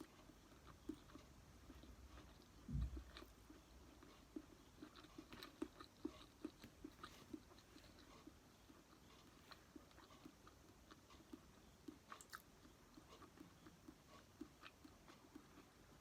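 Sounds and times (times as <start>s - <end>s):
person chewing food: 0.0s - 16.0s
dull low thump: 2.6s - 3.2s.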